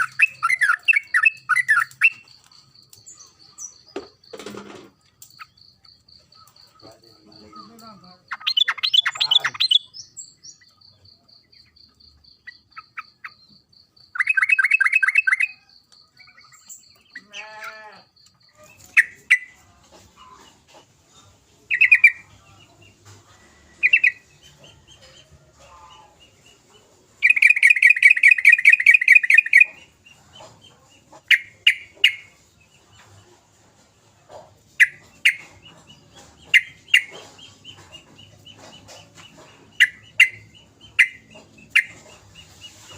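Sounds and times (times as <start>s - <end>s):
bird rattling chatter calls: 27.2s - 32.4s.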